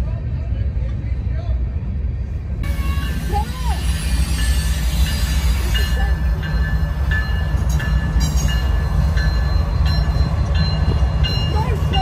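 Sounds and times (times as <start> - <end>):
train passing rumble: 0.0 - 12.0
bell ringing: 4.4 - 12.0.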